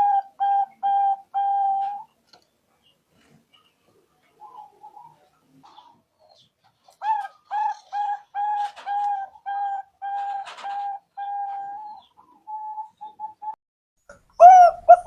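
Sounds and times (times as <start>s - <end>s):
dove cooing: 0.0s - 2.1s, 4.4s - 13.6s, 14.3s - 15.0s.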